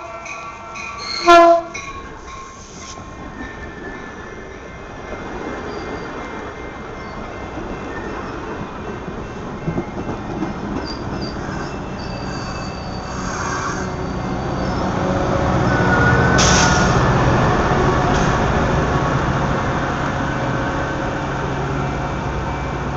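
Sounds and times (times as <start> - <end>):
train wheels rumbling: 0.0 - 22.9
sharp hiss: 2.4 - 3.1, 16.4 - 17.0
faint wheel squeal: 10.8 - 14.8.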